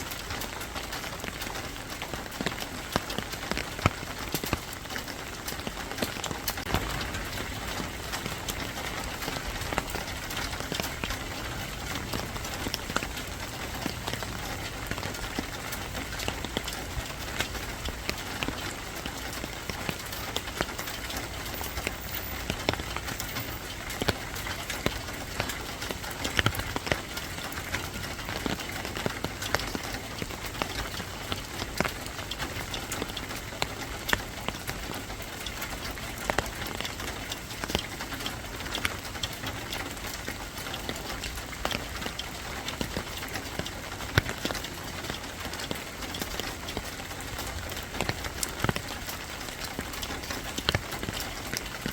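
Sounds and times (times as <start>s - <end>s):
sharp drip ticks: 0.0s - 51.9s
steady rain: 0.0s - 51.9s.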